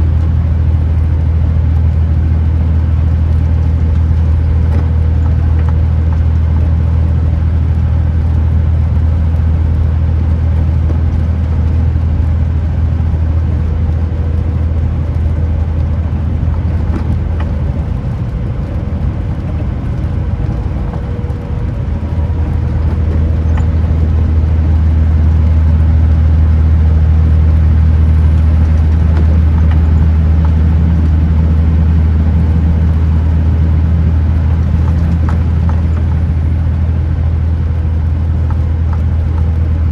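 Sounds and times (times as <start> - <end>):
truck diesel engine droning: 0.0 - 39.9.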